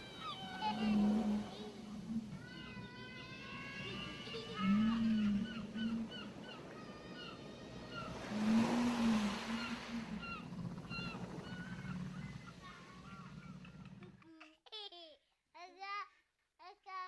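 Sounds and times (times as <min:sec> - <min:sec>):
wave washing up shore: 0:00.0 - 0:13.4
whale call moaning: 0:00.0 - 0:14.1.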